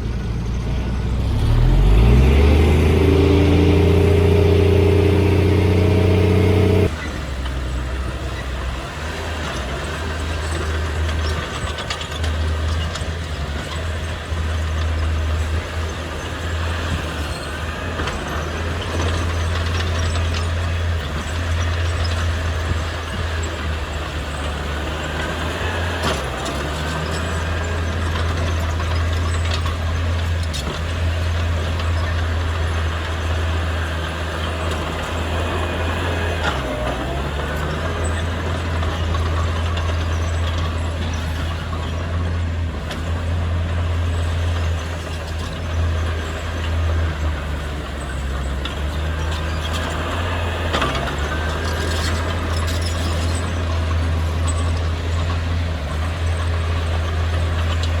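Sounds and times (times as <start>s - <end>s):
heavy diesel engine revving: 0.0s - 58.0s.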